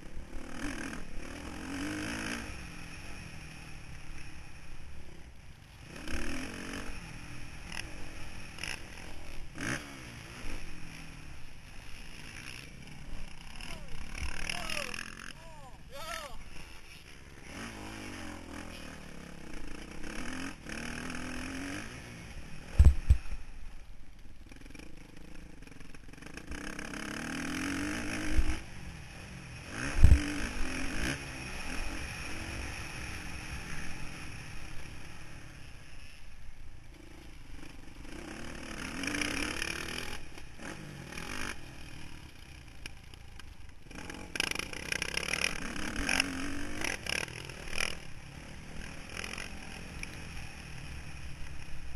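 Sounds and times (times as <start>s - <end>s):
motocross bike engine revving: 0.0s - 23.5s, 24.4s - 36.2s, 36.9s - 51.9s.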